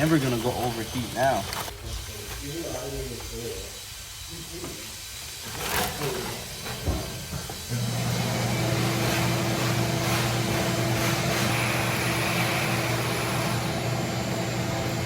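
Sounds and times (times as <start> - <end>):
steady machine hum: 7.7 - 15.0.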